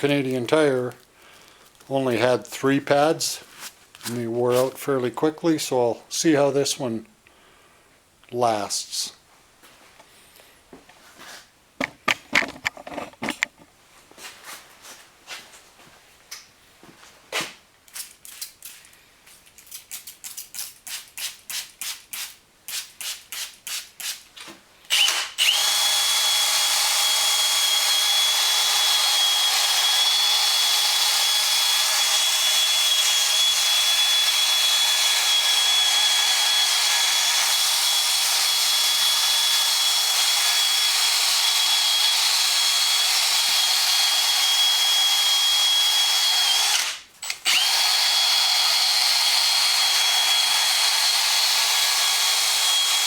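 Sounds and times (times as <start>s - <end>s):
power drill sanding whine: 24.9s - 53.0s.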